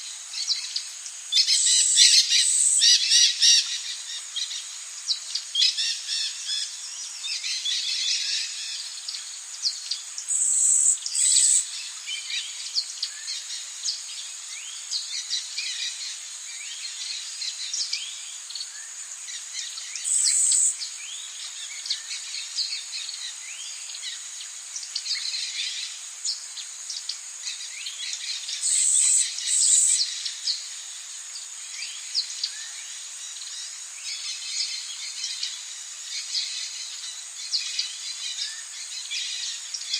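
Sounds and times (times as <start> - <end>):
high-pitched insect drone: 0.0 - 39.9
birds chirping and calling: 1.4 - 4.6, 10.3 - 11.6, 19.6 - 20.7, 27.4 - 30.6.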